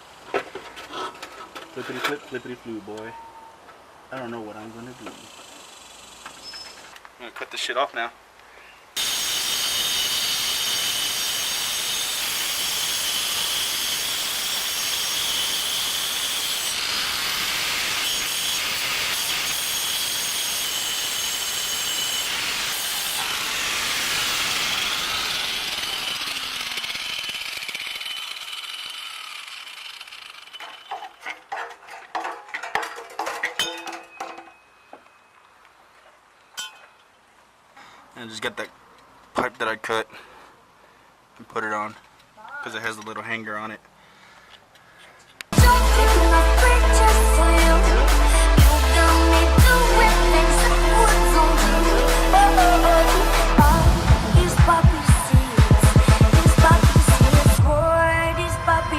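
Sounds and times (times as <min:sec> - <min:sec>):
power tool cutting exhaust pipe: 0:09.0 - 0:31.1, 0:45.6 - 0:57.8
knocks and clinks: 0:30.5 - 0:35.2, 0:36.5 - 0:37.1.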